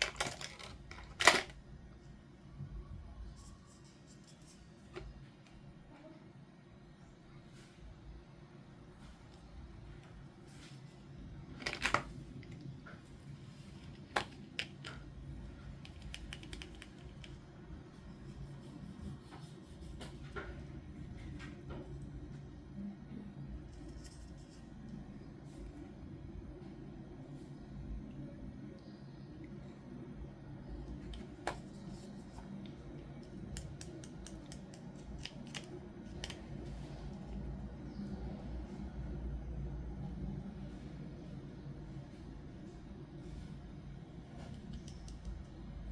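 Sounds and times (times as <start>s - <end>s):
plastic toy pieces clicking: 15.9s - 17.4s.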